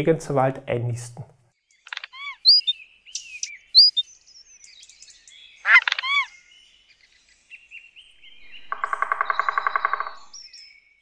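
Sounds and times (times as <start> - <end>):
birds chirping: 1.5 - 11.0
harsh downward-sliding bird calls: 2.0 - 4.1, 5.5 - 6.5, 8.0 - 10.5.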